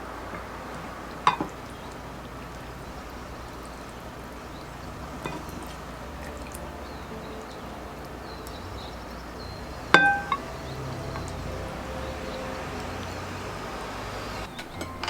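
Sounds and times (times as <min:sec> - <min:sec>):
tableware clinking: 0:09.9 - 0:10.5, 0:14.5 - 0:15.0.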